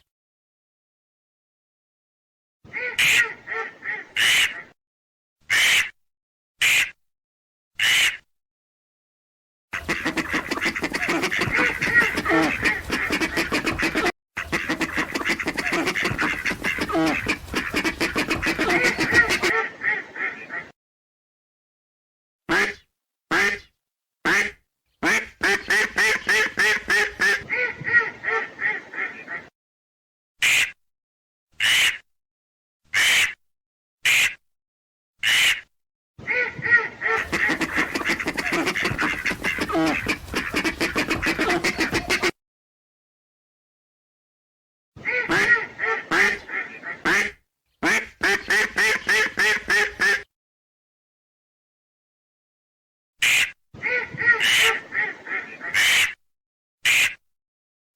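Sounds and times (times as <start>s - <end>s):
ducks quacking: 2.7s - 4.7s, 9.8s - 20.7s, 24.3s - 29.5s, 36.3s - 42.3s, 45.0s - 50.2s, 53.2s - 56.2s.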